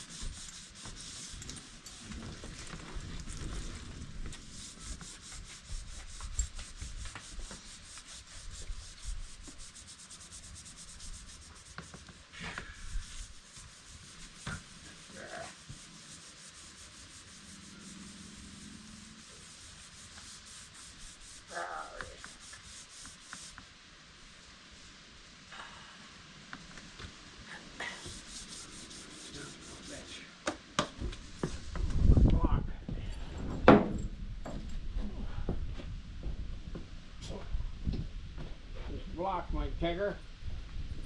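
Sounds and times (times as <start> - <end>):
sandpaper rubbing on metal panels: 0.0 - 23.6, 27.5 - 30.3.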